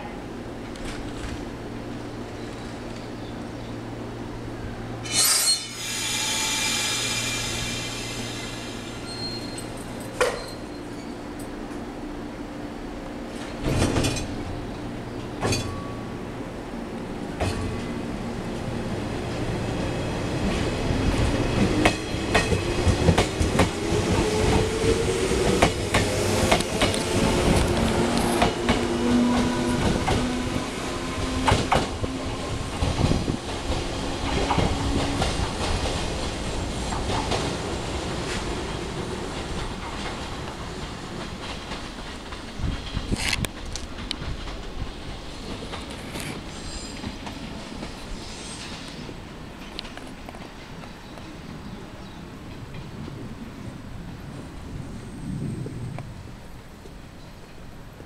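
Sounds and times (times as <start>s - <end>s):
train motor whine rising: 5.1s - 9.9s.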